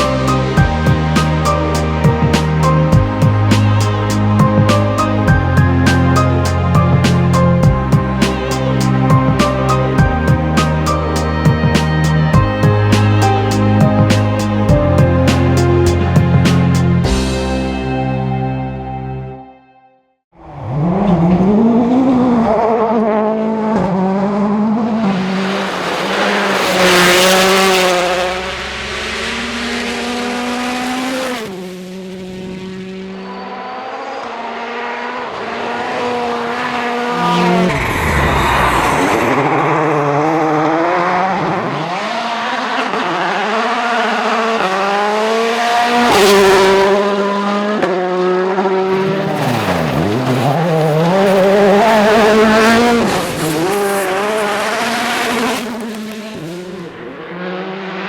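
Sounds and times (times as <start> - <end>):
rally car engines revving: 0.0 - 17.1, 20.4 - 58.0
hissing rush of passing cars: 25.0 - 32.2.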